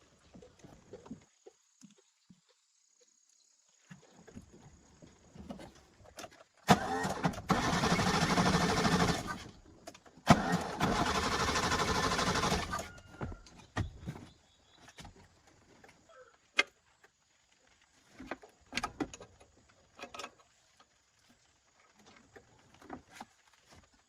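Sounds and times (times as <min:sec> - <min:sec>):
car engine cranking: 0:06.7 - 0:09.6, 0:10.2 - 0:12.9.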